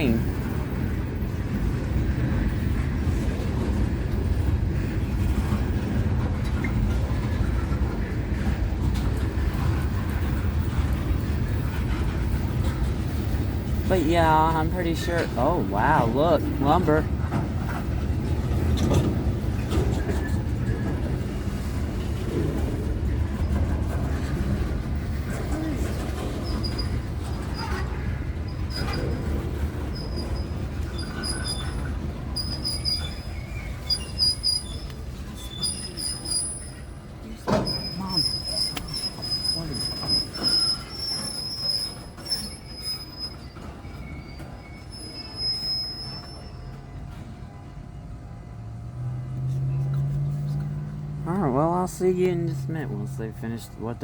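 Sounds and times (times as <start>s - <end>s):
freight train wheels rumbling: 0.0s - 54.0s
train wheels squealing: 25.1s - 47.3s.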